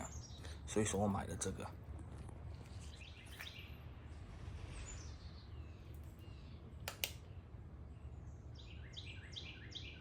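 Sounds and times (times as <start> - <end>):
low steady hum: 0.0 - 10.0
faint bird chirps: 2.7 - 10.0
sharp clicks: 6.8 - 7.3.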